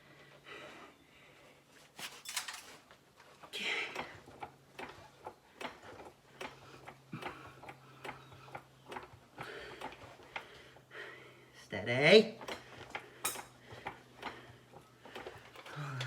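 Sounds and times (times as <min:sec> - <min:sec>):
jack pump clicking: 0:03.9 - 0:10.8.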